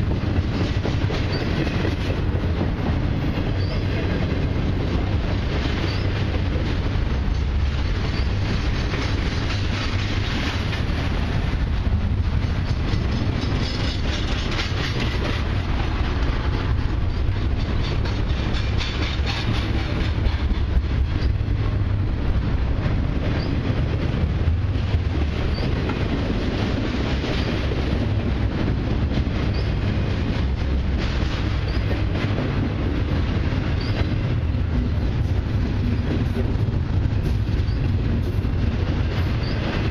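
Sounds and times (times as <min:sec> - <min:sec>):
freight train rumbling past: 0:00.0 - 0:39.9
wheels clacking over rail joints: 0:00.0 - 0:39.9.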